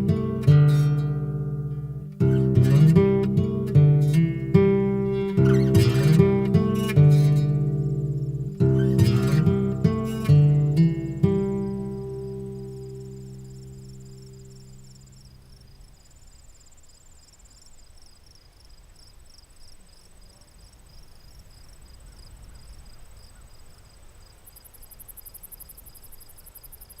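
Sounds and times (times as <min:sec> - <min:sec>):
guitar chord: 0:00.0 - 0:15.5
insects chirping: 0:00.0 - 0:27.0.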